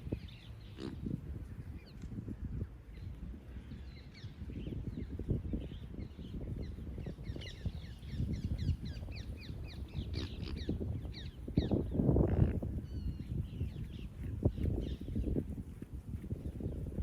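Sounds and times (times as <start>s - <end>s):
wind buffeting microphone: 0.0s - 17.0s
birds calling: 5.5s - 15.2s.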